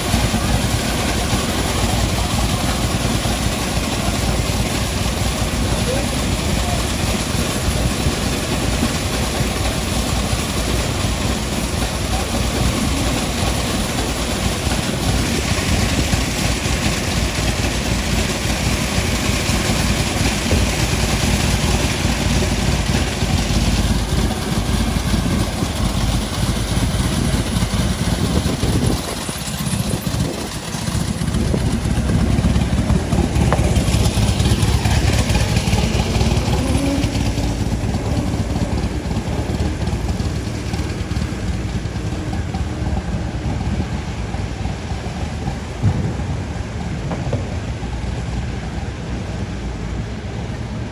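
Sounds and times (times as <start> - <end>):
vehicles passing in traffic: 0.0 - 50.9.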